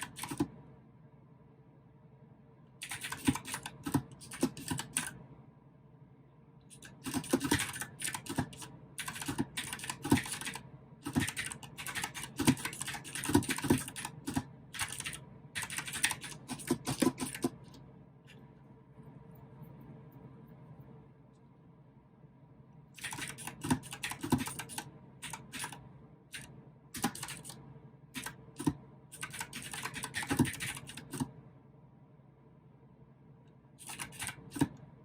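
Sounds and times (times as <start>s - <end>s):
clicky mechanical keyboard typing: 0.0s - 0.6s, 2.8s - 5.2s, 6.7s - 17.8s, 23.0s - 27.6s, 28.2s - 31.3s, 33.8s - 34.8s.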